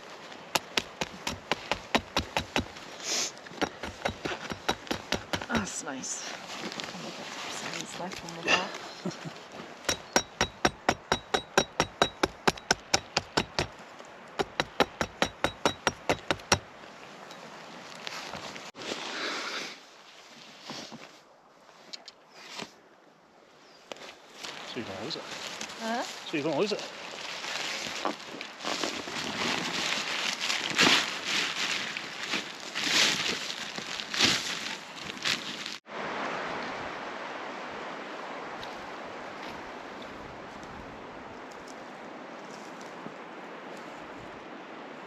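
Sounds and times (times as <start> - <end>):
rapid hammering on metal: 9.9 - 13.7, 14.4 - 16.6
footsteps crunching through leaves: 24.3 - 35.9.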